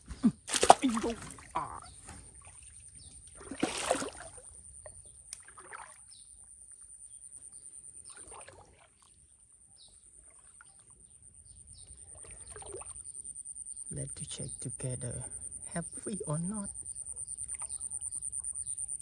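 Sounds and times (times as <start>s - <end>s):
water splashing and sloshing: 0.5s - 6.2s, 8.0s - 9.4s, 12.0s - 13.1s.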